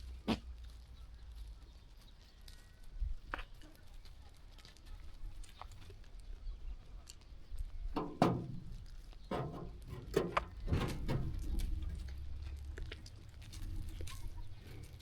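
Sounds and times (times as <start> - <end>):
sheep shuffling and rustling: 0.0 - 15.0
steady low rumble: 8.6 - 15.0.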